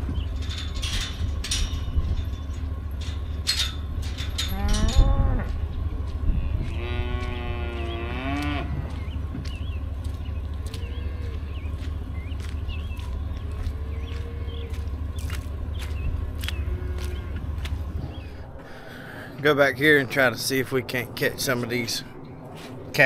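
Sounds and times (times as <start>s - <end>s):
steady low rumble: 0.0s - 23.0s
cattle mooing: 4.4s - 9.2s, 10.6s - 11.7s, 13.6s - 14.8s, 16.5s - 17.6s.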